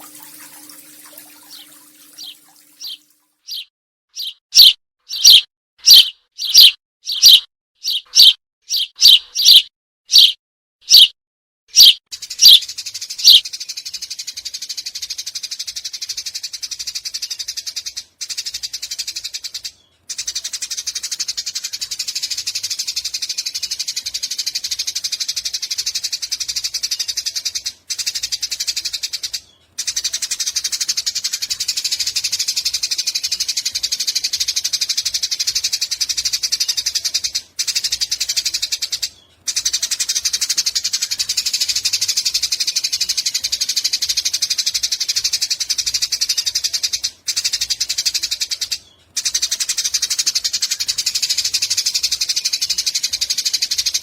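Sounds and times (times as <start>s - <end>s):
sparrow chattering trill: 0.0s - 11.1s, 11.8s - 12.6s, 13.2s - 13.4s.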